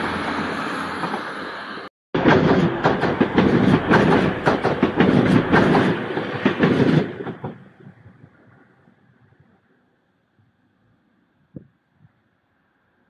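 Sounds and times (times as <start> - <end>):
train rumble: 0.0 - 9.6
train wheels clattering over rail joints: 2.2 - 8.0.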